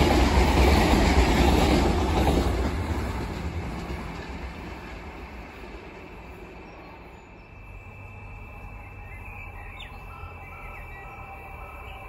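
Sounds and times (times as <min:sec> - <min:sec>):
passenger train rumbling: 0:00.0 - 0:12.0
bird chirps: 0:06.6 - 0:12.0.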